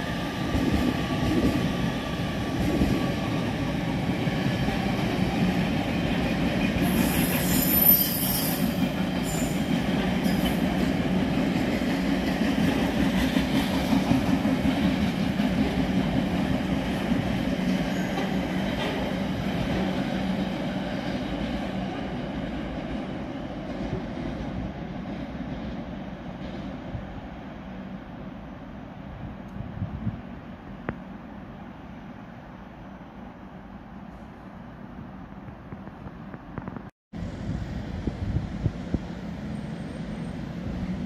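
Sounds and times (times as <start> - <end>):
freight train rumbling past: 0.0 - 36.4, 37.2 - 41.0
high wheel squeal: 6.8 - 9.7, 17.8 - 18.4.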